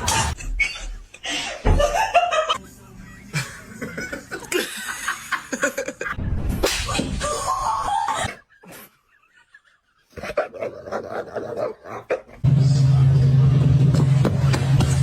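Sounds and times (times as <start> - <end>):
people laughing: 0.0 - 6.2, 6.9 - 11.3
sharp slaps or knocks: 6.6 - 7.2.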